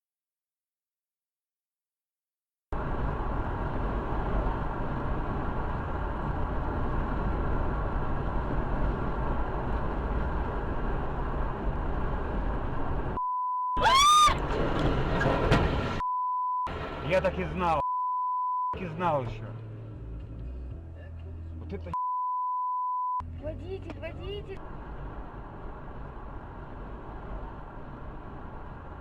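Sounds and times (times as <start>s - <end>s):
car driving heard from inside: 2.8s - 13.2s, 13.8s - 16.1s, 16.7s - 20.7s.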